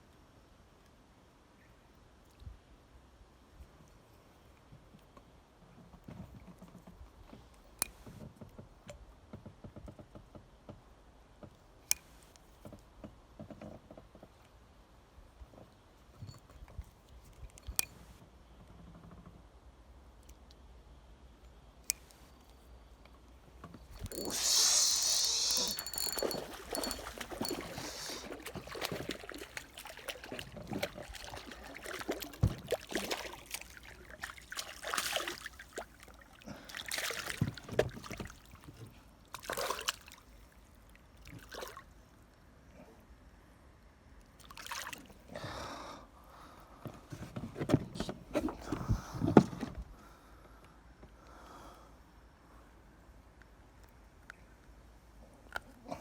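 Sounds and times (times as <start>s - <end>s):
water splashing and trickling: 23.9s - 42.0s, 44.4s - 45.2s.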